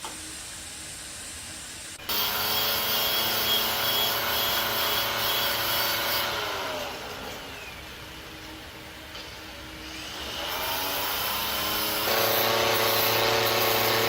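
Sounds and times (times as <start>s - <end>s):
power tool whining: 2.1s - 8.5s, 9.8s - 14.0s.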